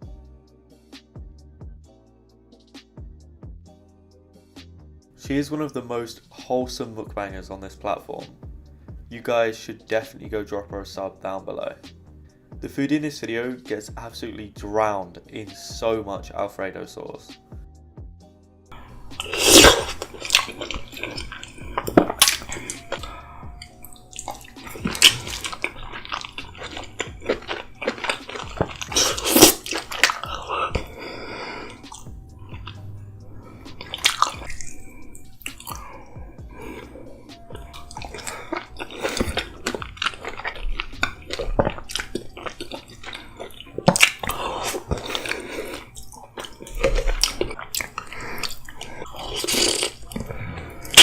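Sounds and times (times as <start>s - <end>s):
food dipped in thick sauce: 18.8s - 51.0s.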